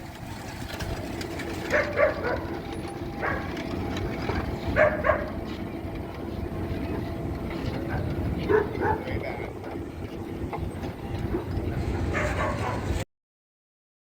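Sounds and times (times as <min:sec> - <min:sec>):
low engine-like rumble: 0:00.0 - 0:13.0
dog barking: 0:01.7 - 0:02.6, 0:03.2 - 0:03.6, 0:04.8 - 0:05.4, 0:07.9 - 0:09.2, 0:11.3 - 0:13.0.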